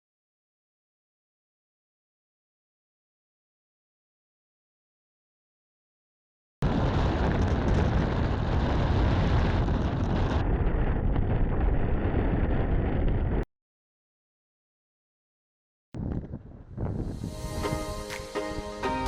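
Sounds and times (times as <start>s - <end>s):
wind rumbling on microphone: 6.6s - 13.5s, 16.0s - 18.8s.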